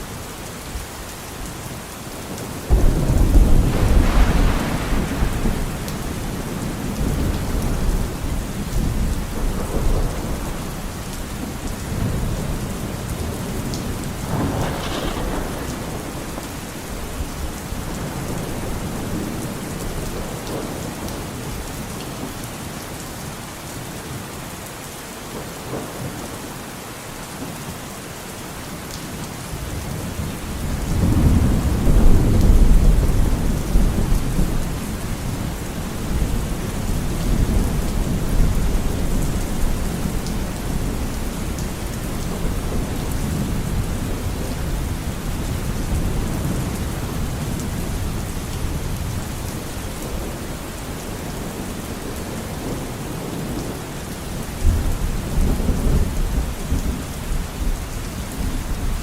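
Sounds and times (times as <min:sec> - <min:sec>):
steady rain: 0:00.0 - 0:59.0
rolling thunder: 0:02.6 - 0:21.6, 0:30.1 - 0:53.6.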